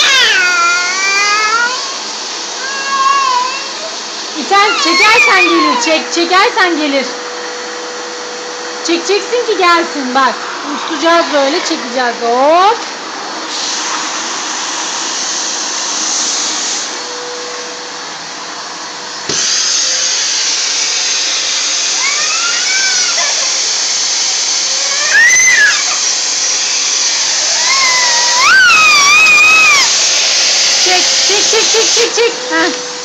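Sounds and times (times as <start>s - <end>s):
vacuum cleaner running: 0.0s - 33.0s
high rising and falling squeals: 4.5s - 6.4s, 24.6s - 30.6s.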